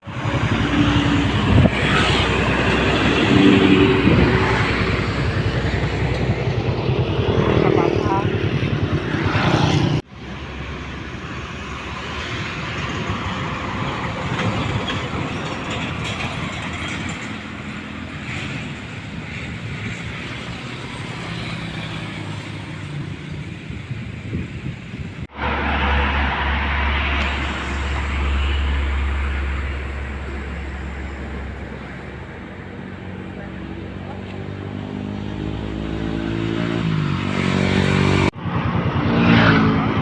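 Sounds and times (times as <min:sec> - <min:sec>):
vehicles passing: 0:00.0 - 0:40.0.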